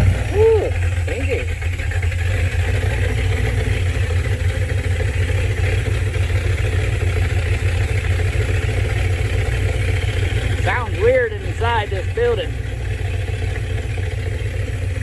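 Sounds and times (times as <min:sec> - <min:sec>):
car engine with howling intake: 0:00.0 - 0:15.0.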